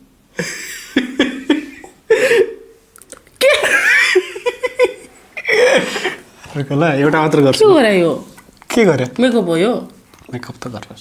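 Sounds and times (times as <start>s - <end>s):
people laughing and giggling: 0.4s - 2.6s, 3.4s - 6.3s.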